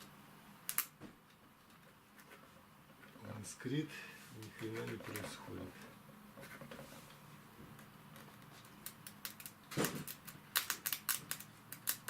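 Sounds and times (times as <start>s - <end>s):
electrical sparks snapping: 0.6s - 1.0s, 8.8s - 12.0s.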